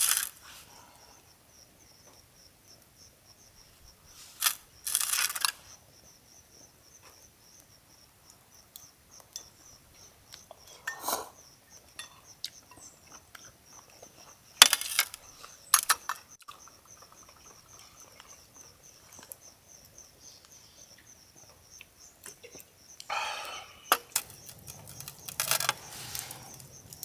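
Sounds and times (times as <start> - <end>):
insects trilling: 0.0 - 27.0
camp gear clinking and knocking: 23.9 - 27.0.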